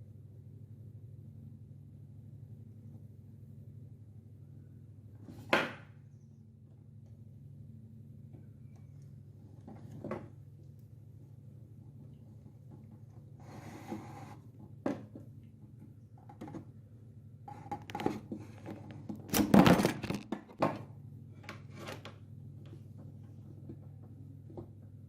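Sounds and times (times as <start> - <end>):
steady low hum: 0.0 - 25.0
objects knocking and clattering: 14.6 - 16.7, 17.6 - 20.9.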